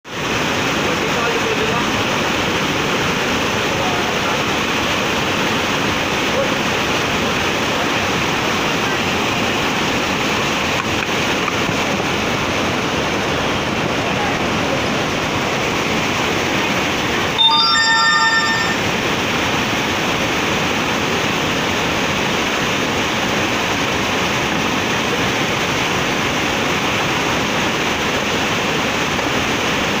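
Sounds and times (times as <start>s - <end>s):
chord of steady tones: 17.4s - 19.0s.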